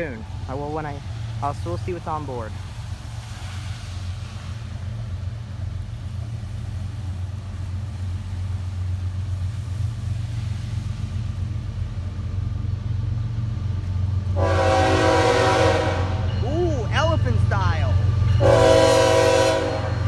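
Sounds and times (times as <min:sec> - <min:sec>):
diesel locomotives rumbling: 0:00.0 - 0:20.0
train horn: 0:14.4 - 0:16.4, 0:18.3 - 0:20.0.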